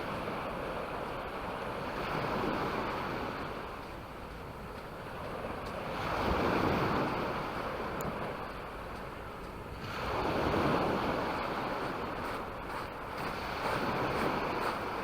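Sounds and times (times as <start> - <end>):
sea waves washing onto beach: 0.0 - 15.0.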